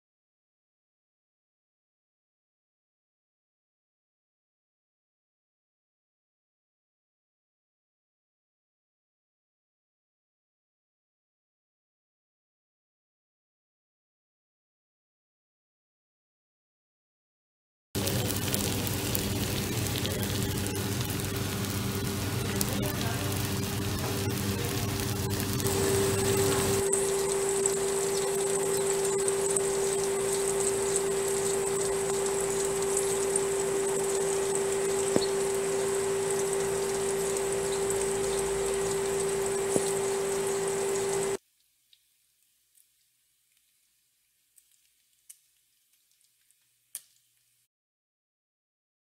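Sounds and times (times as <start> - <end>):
steady low hum: 18.0 - 41.4
food sizzling in hot oil: 18.0 - 47.6.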